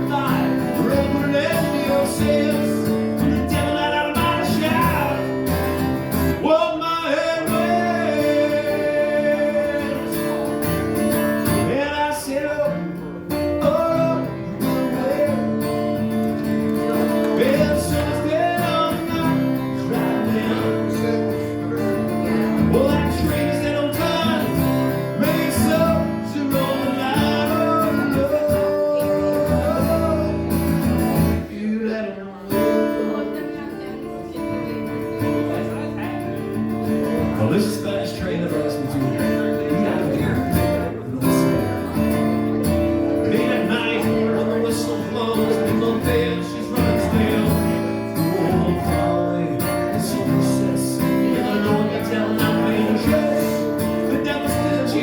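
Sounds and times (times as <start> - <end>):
acoustic guitar playing: 0.0 - 55.0.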